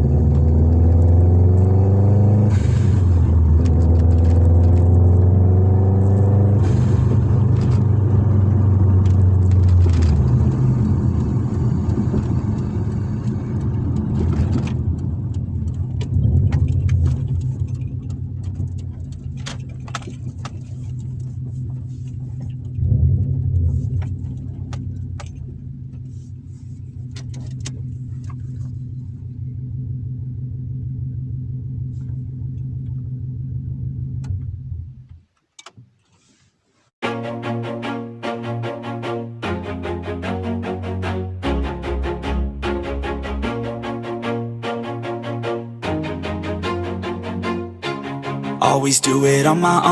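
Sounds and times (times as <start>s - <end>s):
turbocharged car engine cruising: 0.0s - 35.2s, 37.0s - 49.9s
light clicks and rattles: 9.0s - 22.8s.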